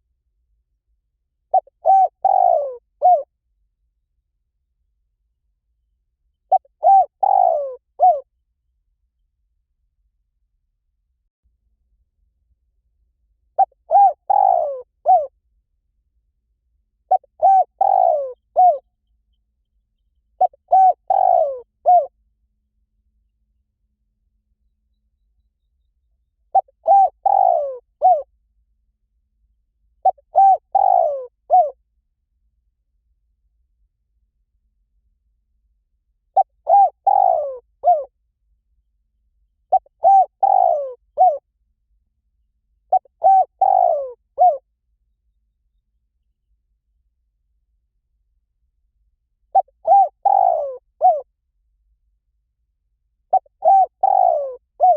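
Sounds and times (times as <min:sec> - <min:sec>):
dove cooing: 0:01.5 - 0:03.3, 0:06.5 - 0:08.2, 0:13.6 - 0:15.3, 0:17.1 - 0:18.8, 0:20.4 - 0:22.1, 0:26.5 - 0:28.3, 0:30.0 - 0:31.8, 0:36.4 - 0:38.1, 0:39.7 - 0:41.4, 0:42.9 - 0:44.6, 0:49.6 - 0:51.3, 0:53.3 - 0:54.9.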